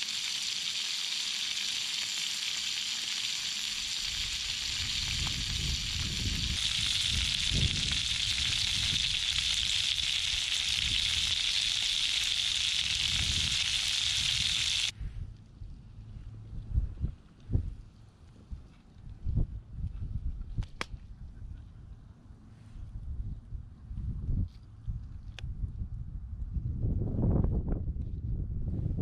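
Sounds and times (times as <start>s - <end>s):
food sizzling in a pan: 0.0s - 14.9s.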